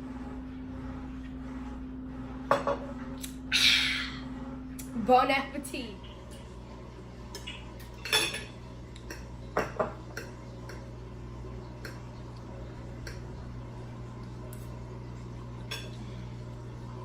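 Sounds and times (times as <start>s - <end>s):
steady low hum: 0.0s - 17.0s
cutlery clinking against plate: 7.9s - 10.3s.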